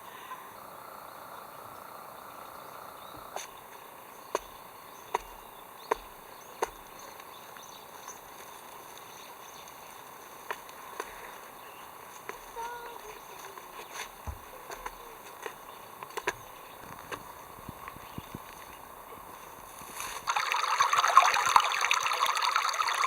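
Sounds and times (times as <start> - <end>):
insect-like background hum: 0.0 - 23.0.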